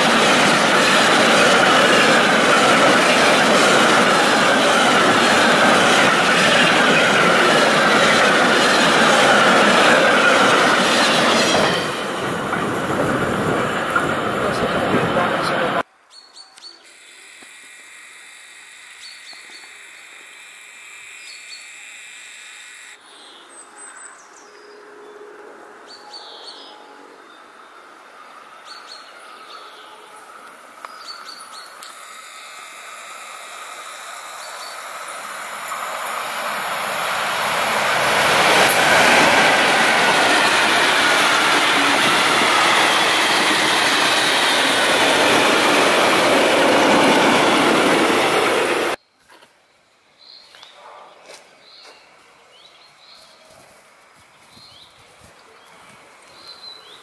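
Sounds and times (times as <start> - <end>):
freight train wheels on rails: 0.0 - 15.8, 34.2 - 49.0.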